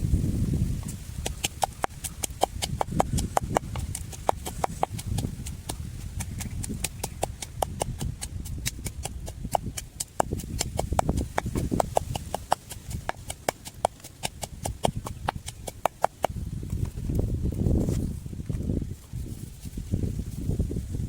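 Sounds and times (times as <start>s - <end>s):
low rumble: 0.0s - 1.2s
rapid sharp clicks and taps: 0.8s - 17.2s.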